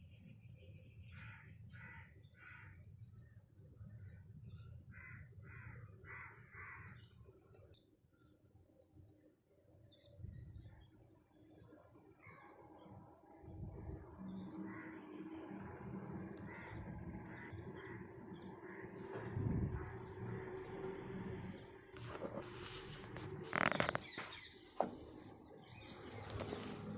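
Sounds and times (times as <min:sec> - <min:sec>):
birds chattering: 0:04.0 - 0:08.5, 0:09.9 - 0:26.9
low rumble: 0:13.4 - 0:24.0.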